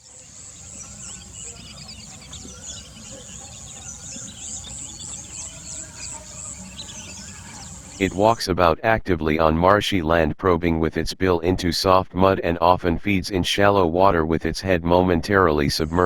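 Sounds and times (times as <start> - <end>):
small bird chirps: 0.0 - 8.2.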